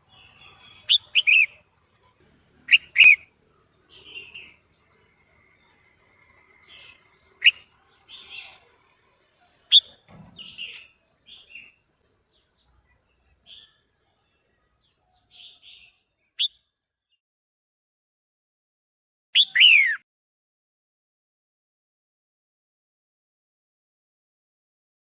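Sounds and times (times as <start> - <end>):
sharp loud bird notes: 0.0 - 1.7, 2.6 - 4.8, 19.4 - 20.0
bird chirping softly: 0.0 - 17.0.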